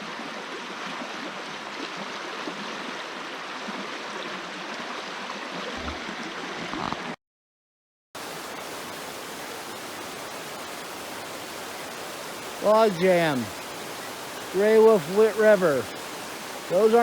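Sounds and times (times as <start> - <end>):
water rushing over rocks: 8.2 - 17.0.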